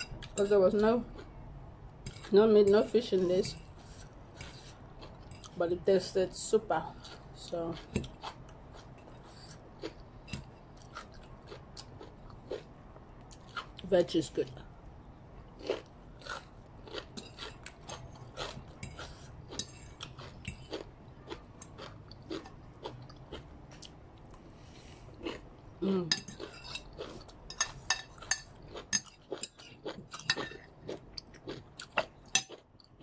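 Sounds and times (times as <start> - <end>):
chewing and crunching noodles: 3.7 - 5.6, 6.8 - 13.8, 15.3 - 33.0
person vocal sound: 25.8 - 26.2.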